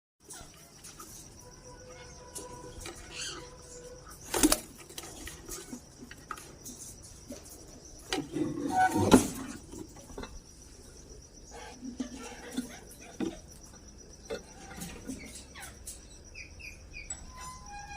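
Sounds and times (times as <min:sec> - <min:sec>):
faint bird chirps: 0:00.2 - 0:04.5, 0:05.5 - 0:17.9.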